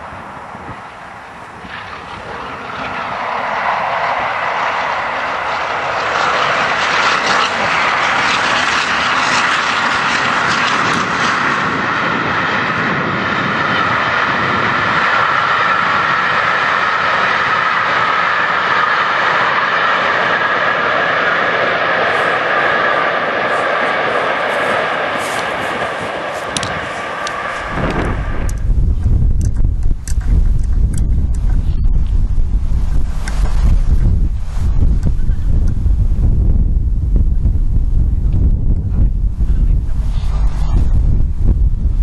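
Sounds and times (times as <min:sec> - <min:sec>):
train passing at speed: 0:00.0 - 0:29.0.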